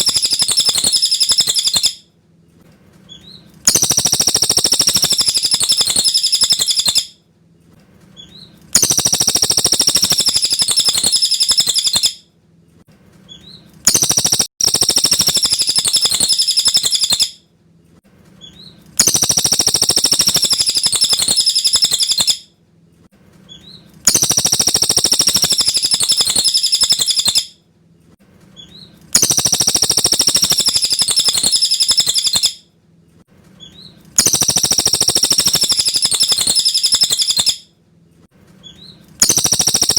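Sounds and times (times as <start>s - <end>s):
bird chattering song: 0.0s - 2.0s, 3.1s - 7.1s, 8.2s - 12.2s, 13.3s - 17.4s, 18.4s - 22.4s, 23.5s - 27.5s, 28.6s - 32.6s, 33.6s - 37.6s, 38.6s - 39.9s.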